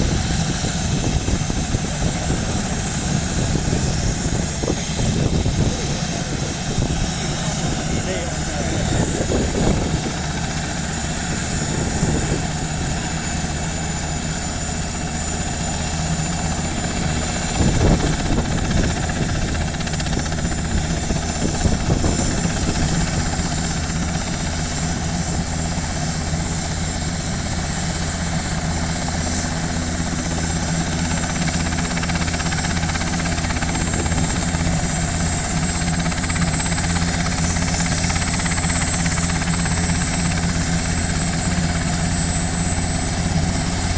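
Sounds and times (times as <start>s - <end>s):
helicopter rotor and whine: 0.0s - 43.9s.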